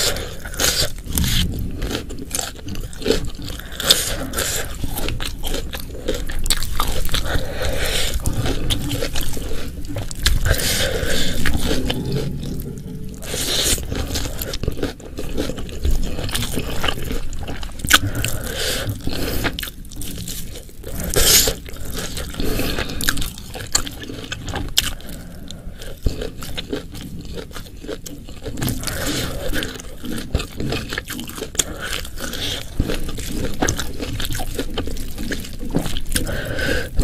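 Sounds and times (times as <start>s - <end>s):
chewing and crunching: 0.0s - 37.0s
wet mouth sounds: 0.0s - 37.0s
scraping: 7.6s - 16.8s.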